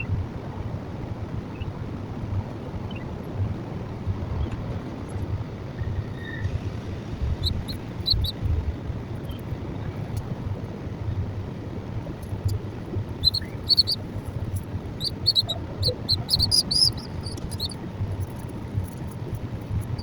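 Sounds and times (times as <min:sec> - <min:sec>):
wind buffeting microphone: 0:00.0 - 0:20.0
high bird chirps: 0:07.4 - 0:08.4, 0:13.1 - 0:19.0.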